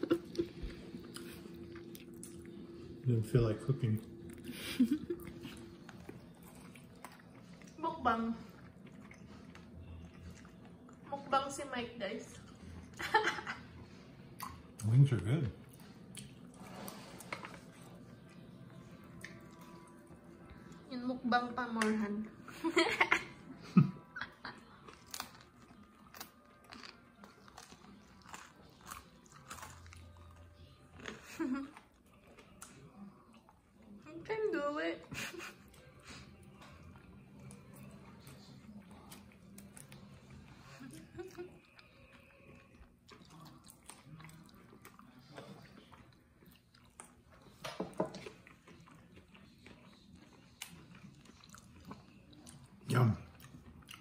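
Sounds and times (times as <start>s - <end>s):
man chewing crunchy food: 0.0s - 7.8s, 8.5s - 11.1s, 24.6s - 34.0s, 35.6s - 54.0s.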